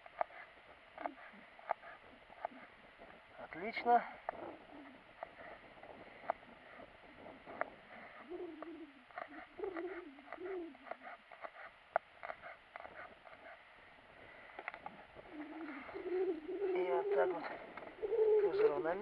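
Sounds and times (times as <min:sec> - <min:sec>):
dove cooing: 0:00.0 - 0:03.5, 0:04.2 - 0:13.6, 0:14.2 - 0:19.0
knife slicing garlic: 0:08.1 - 0:13.6.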